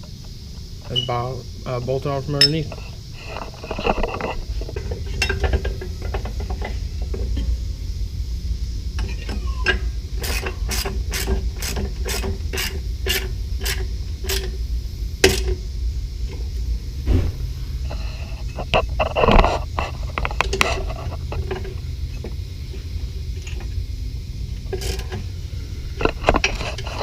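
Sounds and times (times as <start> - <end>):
steady low hum: 0.0 - 27.0
ratchet wrench strokes: 10.2 - 14.5.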